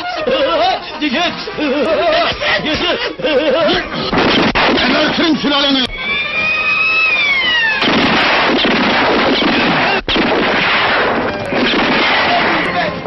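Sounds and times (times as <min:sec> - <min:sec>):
continuous gunfire: 0:04.1 - 0:05.4, 0:07.7 - 0:13.0
falling whistle: 0:05.8 - 0:08.2.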